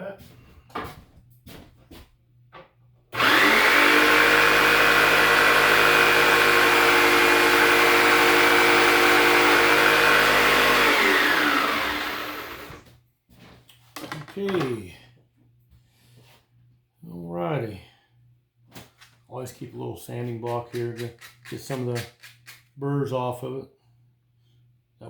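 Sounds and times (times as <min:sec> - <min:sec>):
power tool cutting wood: 0:03.2 - 0:12.8.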